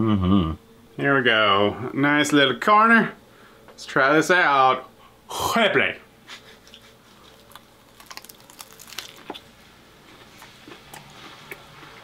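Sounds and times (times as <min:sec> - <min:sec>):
quiet chewing: 0:06.6 - 0:12.0
crisp crunching bites: 0:07.2 - 0:09.5.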